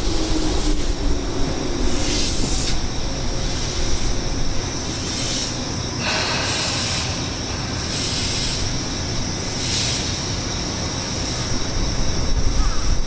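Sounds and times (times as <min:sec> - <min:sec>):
wind buffeting microphone: 0:00.0 - 0:04.9
electric train running: 0:00.0 - 0:13.0.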